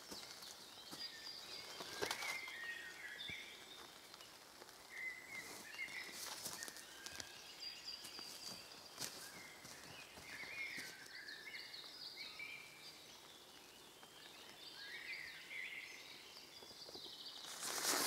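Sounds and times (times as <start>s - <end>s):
faint background noise: 0.0s - 18.0s
small birds singing: 0.0s - 18.0s.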